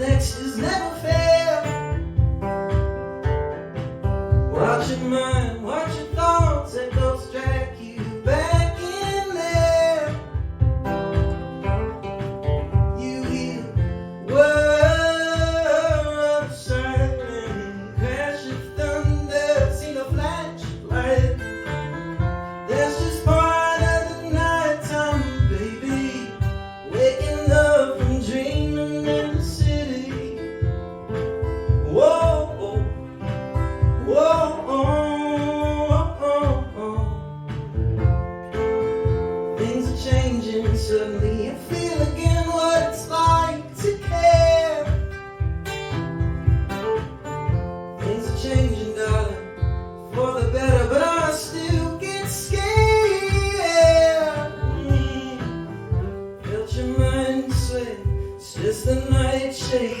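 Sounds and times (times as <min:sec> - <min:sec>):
person singing: 0:00.0 - 0:01.9, 0:12.9 - 0:21.7, 0:22.7 - 0:30.4, 0:50.1 - 1:00.0
acoustic guitar strumming: 0:00.0 - 1:00.0.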